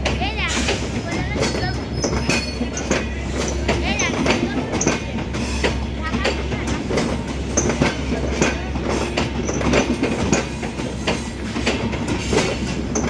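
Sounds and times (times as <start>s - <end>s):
train wheels rumbling on rail: 0.0s - 13.0s
wheels clicking over rail joints: 0.0s - 13.0s.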